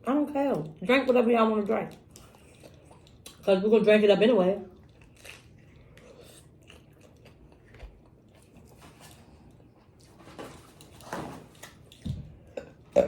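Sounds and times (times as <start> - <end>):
person chewing crunchy food: 1.9 - 3.5, 4.7 - 13.0.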